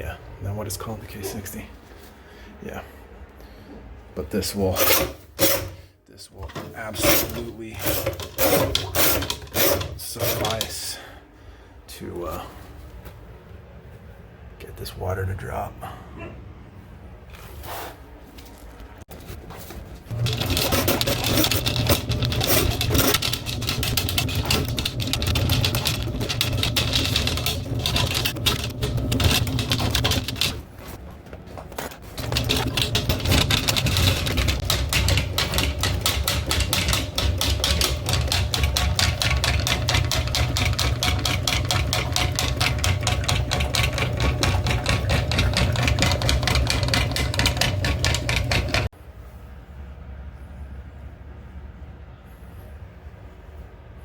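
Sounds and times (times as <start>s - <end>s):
drain-cleaning machine cable rattling: 6.8s - 10.8s, 20.1s - 31.0s, 31.9s - 48.9s.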